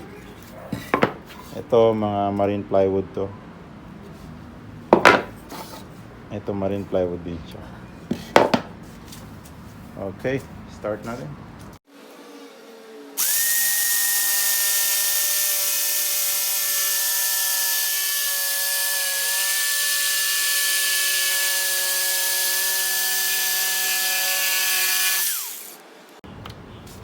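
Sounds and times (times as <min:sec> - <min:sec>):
jigsaw sawing through wood: 0:13.2 - 0:25.8.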